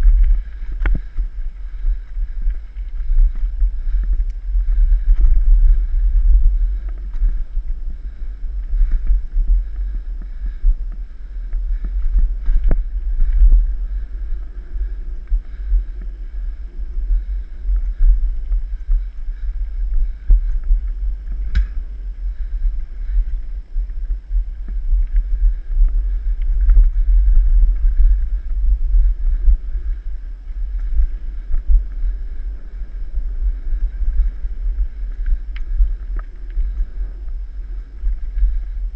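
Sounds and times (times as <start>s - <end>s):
bike clicks and rattles: 0.0s - 16.2s, 17.0s - 23.5s
wind buffeting microphone: 0.0s - 38.9s.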